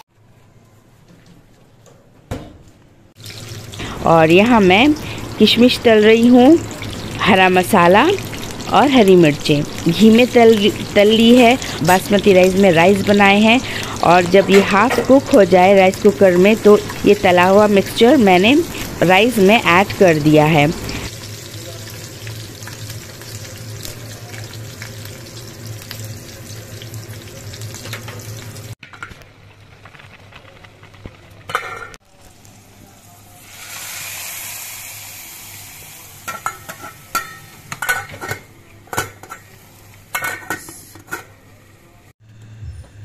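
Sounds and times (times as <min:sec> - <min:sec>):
food sizzling in hot ghee: 0:03.2 - 0:41.7
hot ghee hissing on rice: 0:32.3 - 0:36.3.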